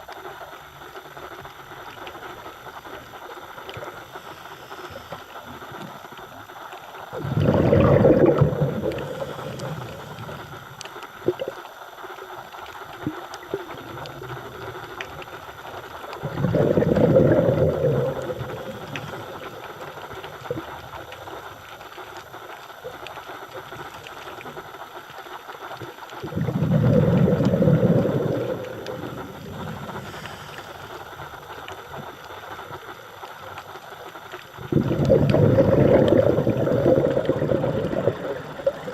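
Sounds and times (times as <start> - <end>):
low hiss: 0.0 - 38.9
breath bubbling underwater: 5.2 - 11.6, 12.8 - 21.7, 25.7 - 38.9.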